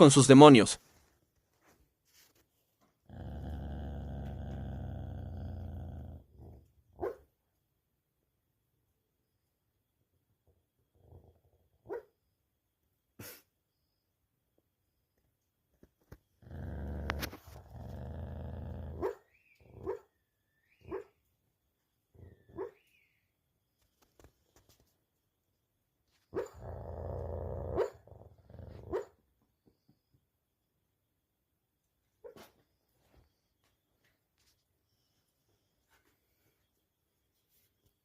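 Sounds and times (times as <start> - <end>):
dog growling: 3.0 - 6.8, 10.9 - 11.8, 16.4 - 20.0, 26.4 - 29.1
dog woofing: 16.5 - 20.1.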